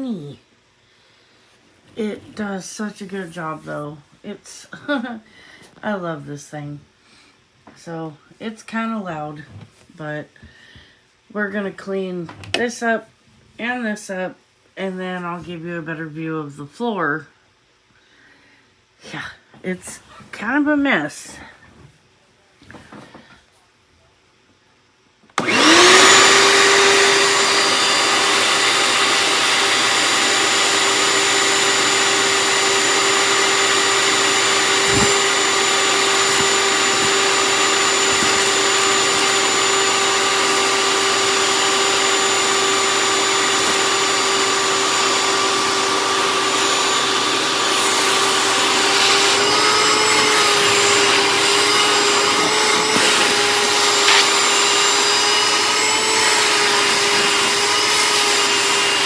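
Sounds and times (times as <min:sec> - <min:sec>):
shop vac motor whine: 0:25.4 - 0:59.0.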